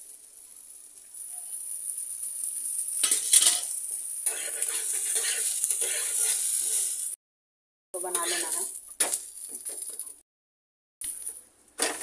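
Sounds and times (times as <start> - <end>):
food sizzling on a hot pan: 0.0 - 7.2, 8.0 - 10.2
metal spatula scraping a pan: 3.0 - 7.2, 8.0 - 9.8.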